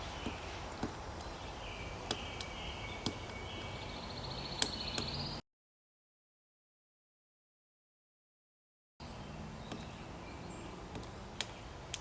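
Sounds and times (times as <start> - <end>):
birds singing: 0.0 - 5.4, 9.0 - 12.0
woodpecker knocking on log: 0.1 - 1.4, 2.0 - 3.7.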